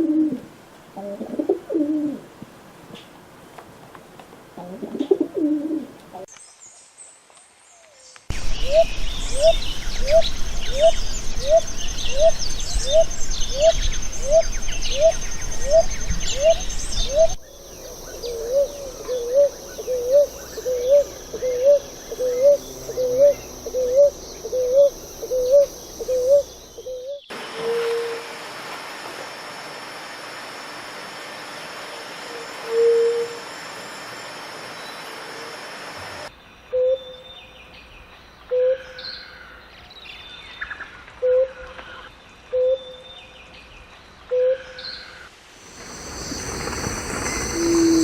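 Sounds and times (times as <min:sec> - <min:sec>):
other birds chirping: 0:08.3 - 0:28.0.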